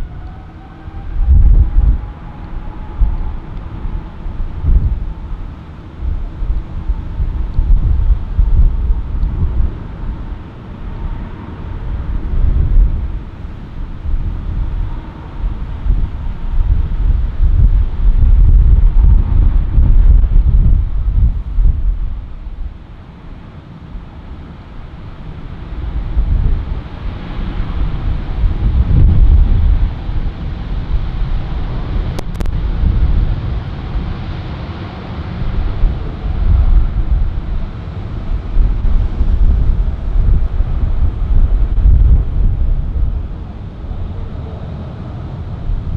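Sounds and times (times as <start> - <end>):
airliner jet rumble: 0.0 - 45.9
wind gusting on microphone: 0.0 - 45.9
short clicks: 32.2 - 32.6.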